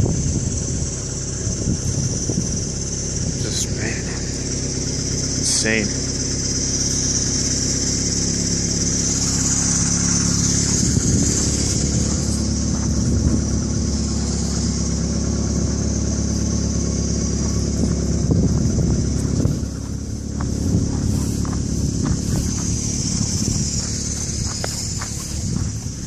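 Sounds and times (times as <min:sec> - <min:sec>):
storm wind: 0:00.0 - 0:03.5, 0:10.5 - 0:15.8, 0:17.4 - 0:26.0
engine humming: 0:00.0 - 0:26.0.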